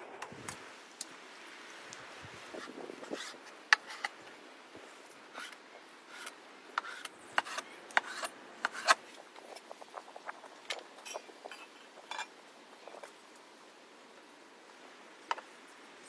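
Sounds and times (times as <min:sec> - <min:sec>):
soft rubbing and scraping: 0:01.8 - 0:13.2.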